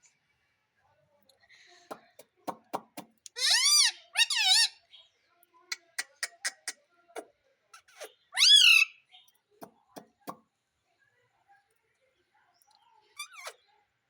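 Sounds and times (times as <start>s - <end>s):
parrot wavering calls: 3.4s - 4.7s, 8.4s - 8.9s.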